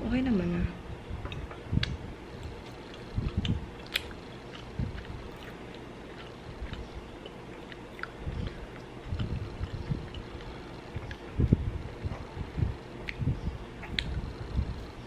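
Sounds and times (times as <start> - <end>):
faint background hum: 0.0 - 15.0
person chewing with mouth closed: 1.3 - 14.8
dull low thumps: 4.7 - 5.3, 8.2 - 15.0.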